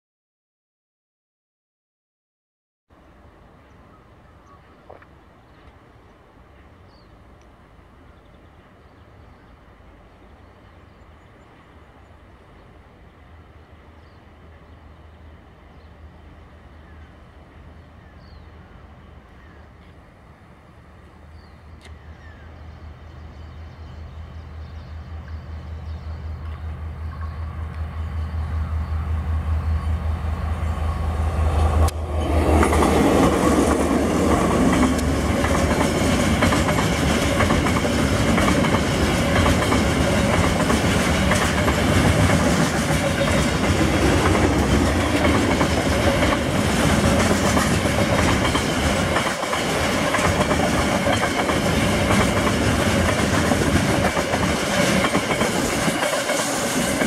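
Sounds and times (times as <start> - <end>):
locomotive engine drone: 3.0 - 57.0
wheels clattering on rails: 31.8 - 57.0.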